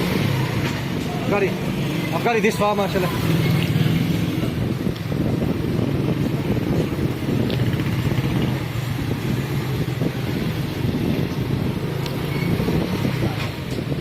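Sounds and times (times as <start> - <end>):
wind buffeting microphone: 3.3 - 14.0.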